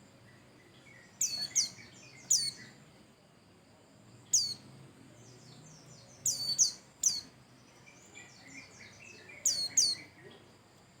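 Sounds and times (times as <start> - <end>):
high twittering chirps: 0.9 - 2.8, 5.7 - 10.1.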